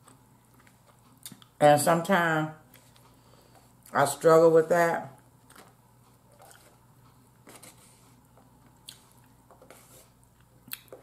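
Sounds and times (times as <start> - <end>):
person chewing soft food: 0.0 - 1.6, 5.3 - 11.0.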